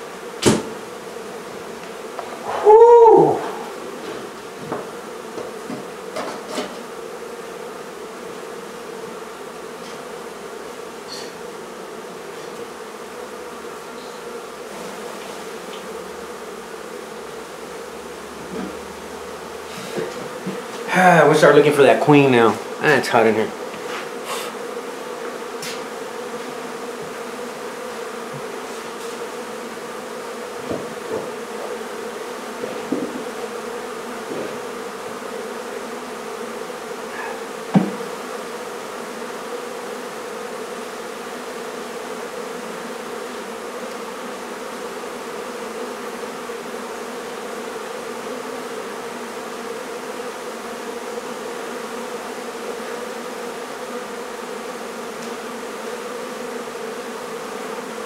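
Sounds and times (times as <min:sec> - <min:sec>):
bees buzzing: 0:00.0 - 0:58.0
light knocks: 0:37.7 - 0:38.1.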